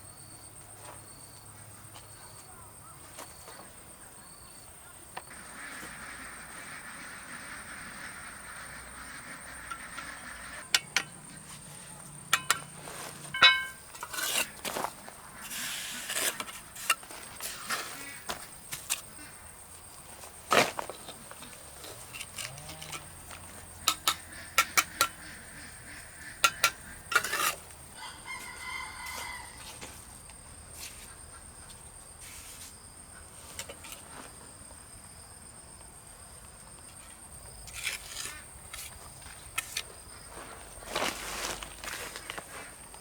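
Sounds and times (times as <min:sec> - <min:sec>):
rooster crowing: 0:28.0 - 0:30.0.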